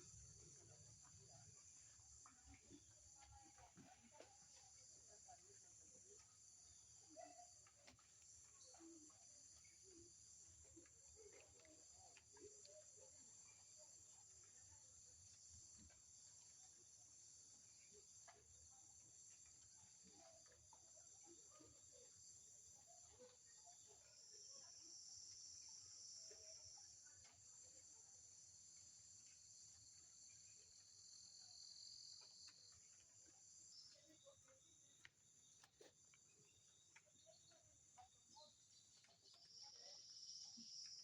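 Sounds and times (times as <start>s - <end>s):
high-pitched insect chorus: 36.2s - 41.0s.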